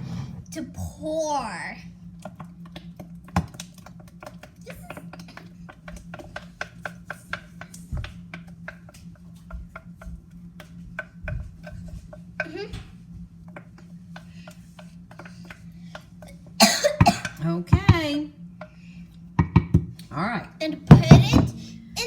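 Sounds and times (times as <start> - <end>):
utensil scraping mixing bowl: 0.0 - 0.8, 2.1 - 16.6.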